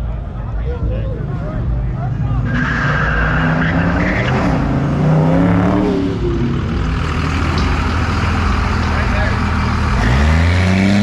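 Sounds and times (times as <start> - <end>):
vehicle engine revving hard: 2.5 - 11.0.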